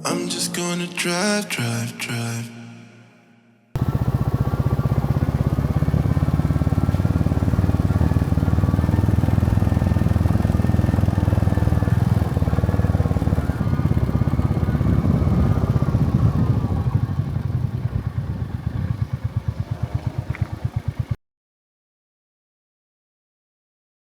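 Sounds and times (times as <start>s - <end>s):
motorcycle engine running: 3.8s - 21.2s.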